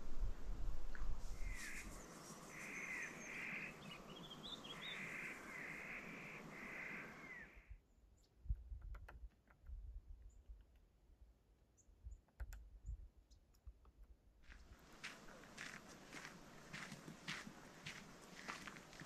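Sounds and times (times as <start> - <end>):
steady hiss: 0.0 - 7.4
harsh crow-like bird calls: 1.4 - 7.7.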